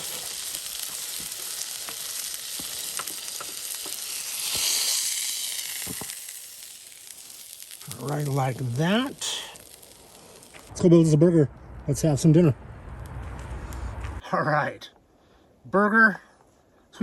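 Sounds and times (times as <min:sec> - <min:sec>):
burger patty sizzling on grill: 0:00.0 - 0:10.7.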